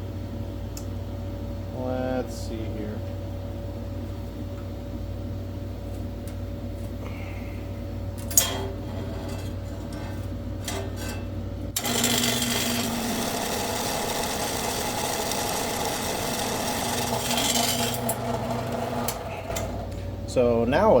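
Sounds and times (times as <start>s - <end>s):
metal-cutting power saw whirring: 11.8s - 19.9s.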